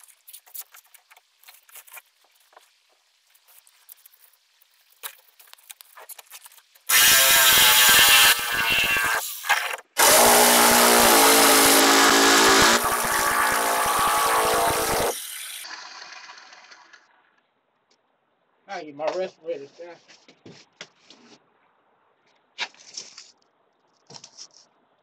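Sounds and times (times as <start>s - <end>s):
power tool grinding fiberglass: 6.9s - 16.9s.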